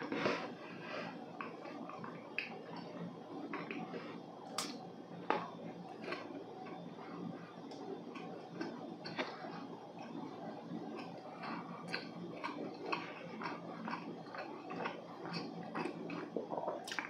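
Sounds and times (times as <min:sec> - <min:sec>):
chewing dry cake: 0:00.0 - 0:17.0
mouth clicks and smacks: 0:04.5 - 0:04.8, 0:11.9 - 0:17.0.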